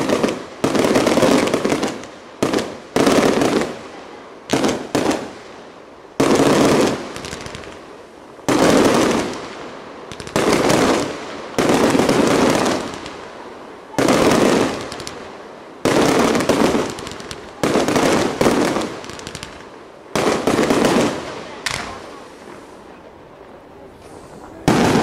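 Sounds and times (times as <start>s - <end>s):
firework shells bursting: 15.9s - 22.7s.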